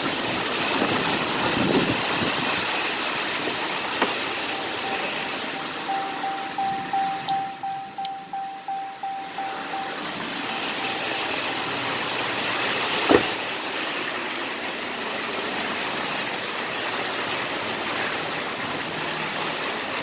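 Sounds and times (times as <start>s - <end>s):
heavy rain on car roof: 0.0s - 20.0s
car warning chime: 4.0s - 12.2s.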